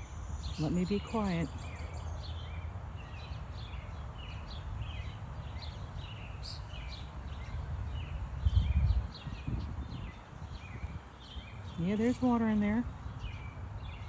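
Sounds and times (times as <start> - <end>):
small songbirds chirping: 0.0 - 14.0
steady low rumble: 3.6 - 14.0.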